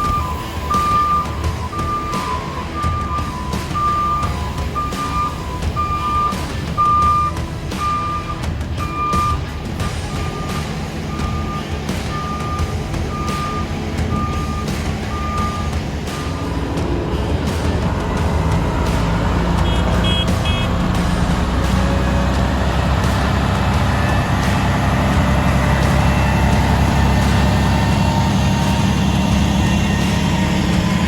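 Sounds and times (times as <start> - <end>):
reversing beeps: 0.0 - 16.6
truck diesel engine running: 0.0 - 31.0.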